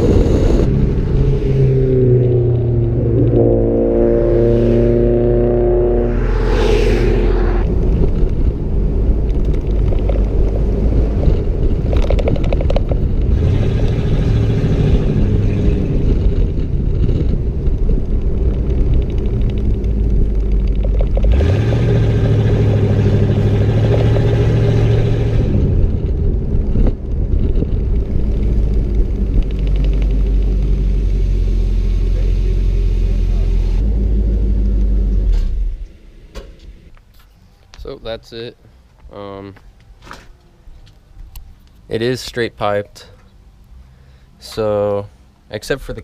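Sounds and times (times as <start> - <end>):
loud vee eight exhaust revving: 0.0 - 7.7, 13.3 - 16.0, 21.3 - 25.8.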